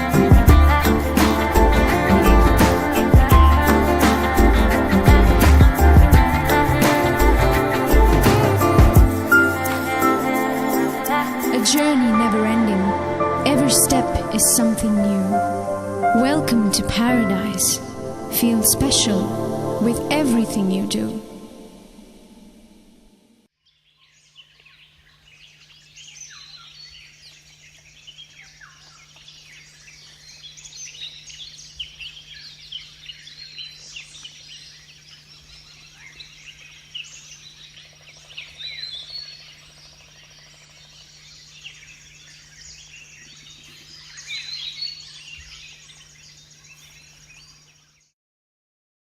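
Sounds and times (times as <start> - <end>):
low hum: 0.0 - 23.5
birds chirping: 23.7 - 48.1.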